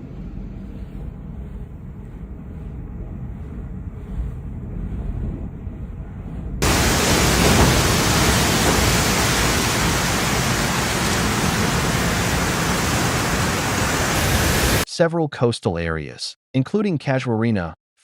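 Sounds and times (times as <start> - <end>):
heavy rain: 6.6 - 14.8
hiss of strong wind: 6.6 - 14.8.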